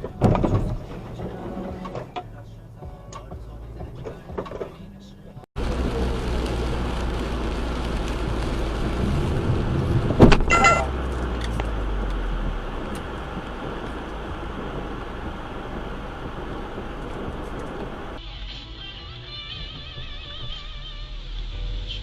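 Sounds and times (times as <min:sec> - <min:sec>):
car road and engine noise: 0:00.0 - 0:22.0
brief high-pitched tone: 0:10.5 - 0:11.0.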